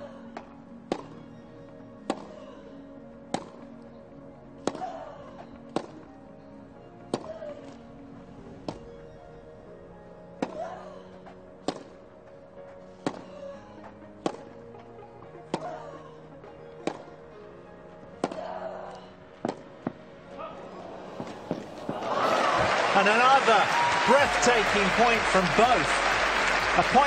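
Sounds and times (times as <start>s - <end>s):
rackets striking tennis ball: 0.9s - 1.2s, 2.1s - 2.4s, 3.3s - 3.7s, 4.6s - 4.9s, 5.6s - 6.0s, 7.1s - 7.8s, 10.4s - 10.6s, 11.6s - 12.0s, 13.0s - 13.4s, 14.2s - 14.5s, 16.8s - 17.1s, 18.2s - 18.5s, 19.4s - 20.0s.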